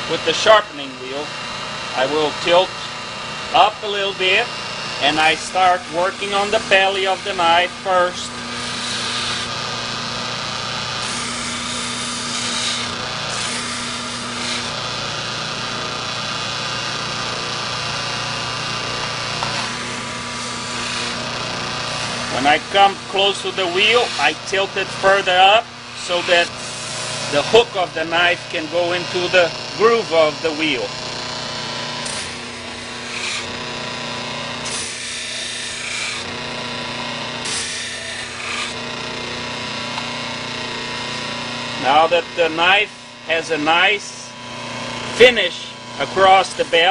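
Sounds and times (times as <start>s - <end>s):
electric buffer motor hum: 0.0s - 46.9s
knife rubbing on buffing wheel: 11.0s - 14.7s, 21.9s - 27.7s.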